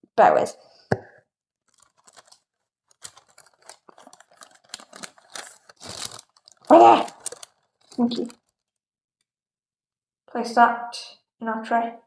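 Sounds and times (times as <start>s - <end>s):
parchment paper crinkling: 1.6s - 8.8s.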